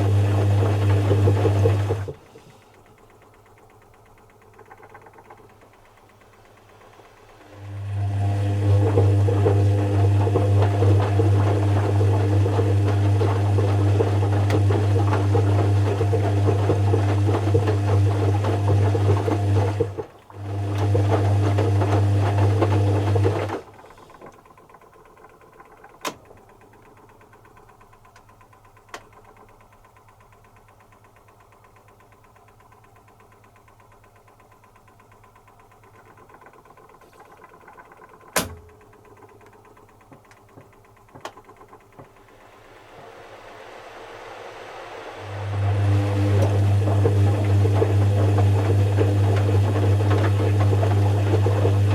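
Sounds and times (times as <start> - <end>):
washing machine humming: 0.0 - 51.9
faint clicks: 2.2 - 7.5.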